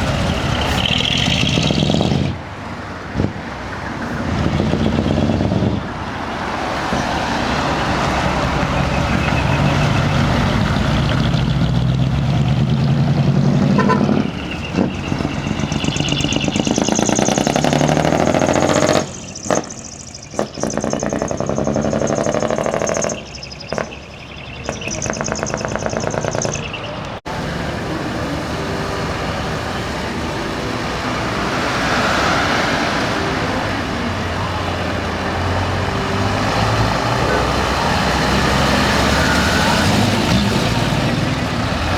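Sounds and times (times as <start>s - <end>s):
diesel truck engines revving: 0.0s - 41.9s
truck horn: 12.8s - 19.8s, 27.3s - 41.9s.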